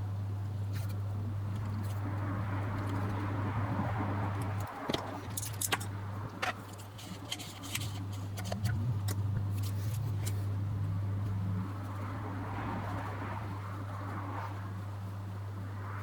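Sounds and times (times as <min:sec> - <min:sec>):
steady low hum: 0:00.0 - 0:16.0
small metallic clicks: 0:04.3 - 0:10.4.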